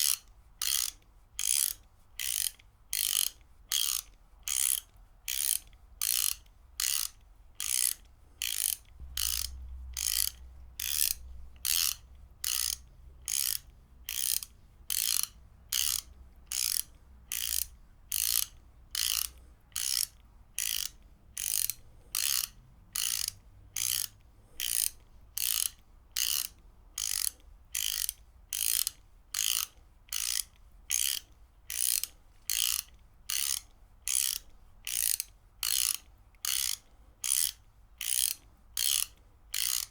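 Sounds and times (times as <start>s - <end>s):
ratchet wrench clicking: 0.0s - 39.9s.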